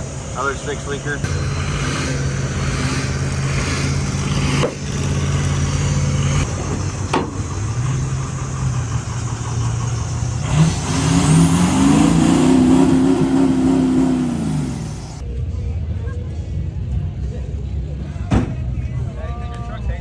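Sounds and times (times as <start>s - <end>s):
pickup truck engine revving: 0.0s - 15.2s.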